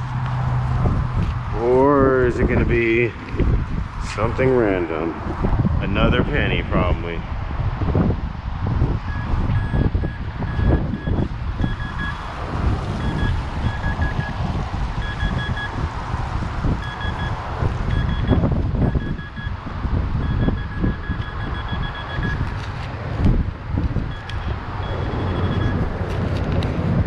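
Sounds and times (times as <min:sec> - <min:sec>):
wind buffeting microphone: 0:00.0 - 0:27.0
metal detector beeps: 0:09.1 - 0:12.2, 0:13.0 - 0:14.4, 0:15.0 - 0:15.8, 0:16.8 - 0:19.6, 0:20.2 - 0:22.5, 0:24.1 - 0:25.8.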